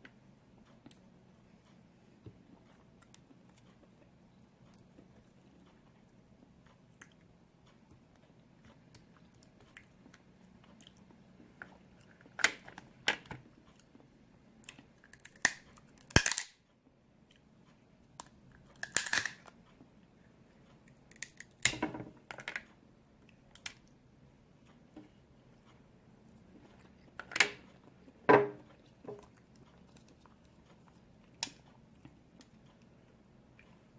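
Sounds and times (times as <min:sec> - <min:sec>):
chewing and crunching: 0:02.4 - 0:16.0, 0:26.3 - 0:32.8
crab shells cracking: 0:15.0 - 0:16.6, 0:18.8 - 0:19.5, 0:21.1 - 0:22.5.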